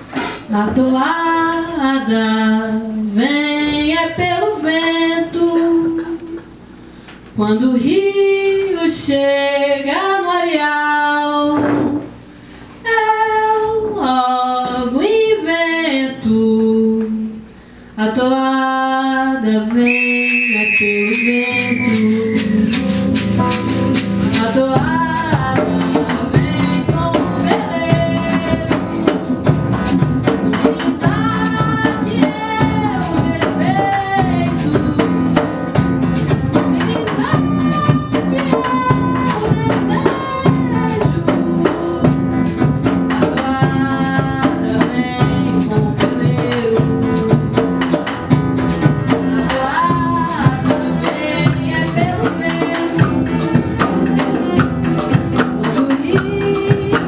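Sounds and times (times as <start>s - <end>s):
acoustic guitar: 0.0s - 18.0s, 19.2s - 57.0s
person singing: 19.1s - 23.0s, 49.2s - 54.7s, 55.4s - 57.0s
shakers: 19.9s - 57.0s.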